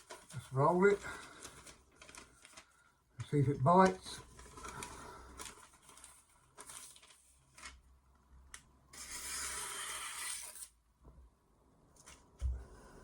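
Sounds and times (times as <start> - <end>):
paper rustling: 0.0 - 7.8.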